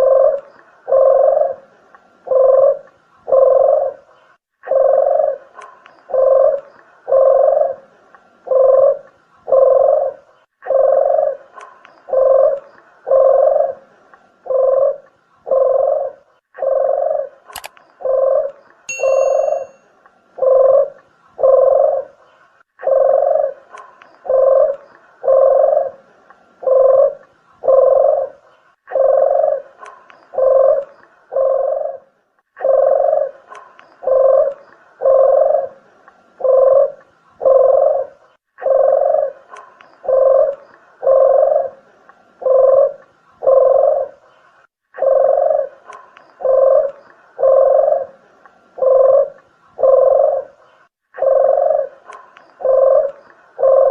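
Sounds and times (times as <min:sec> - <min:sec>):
dove cooing: 0:00.0 - 0:19.8, 0:20.4 - 0:44.4, 0:45.0 - 0:53.9
sharp click: 0:17.5 - 0:17.8
brief high ringing tone: 0:18.9 - 0:19.8.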